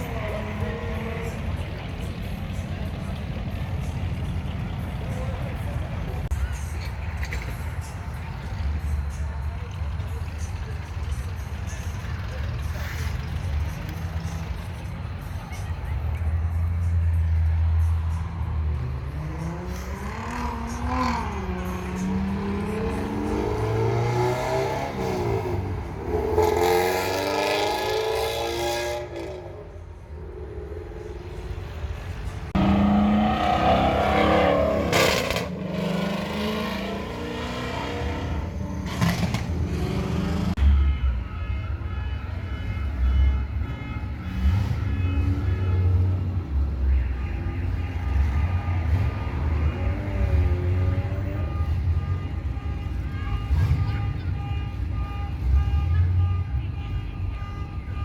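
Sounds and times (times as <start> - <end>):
car engines exhaust rumble: 0.0 - 58.0
car engine revving: 18.8 - 40.6.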